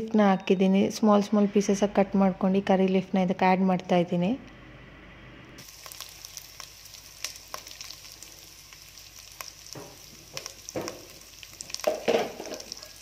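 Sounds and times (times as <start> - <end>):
food sizzling in hot oil: 5.6 - 13.0
oil popping and crackling: 5.6 - 13.0.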